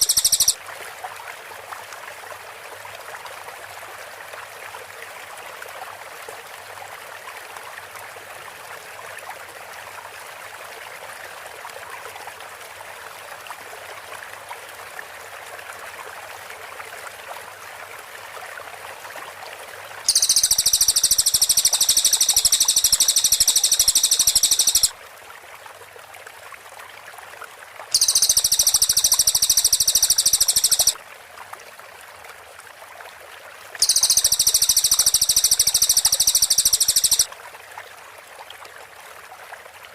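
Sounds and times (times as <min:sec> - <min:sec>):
rapid high-pitched whistle trill: 0:00.0 - 0:00.6, 0:20.1 - 0:24.9, 0:28.0 - 0:31.0, 0:33.8 - 0:37.3
rushing like running water: 0:00.0 - 0:39.9.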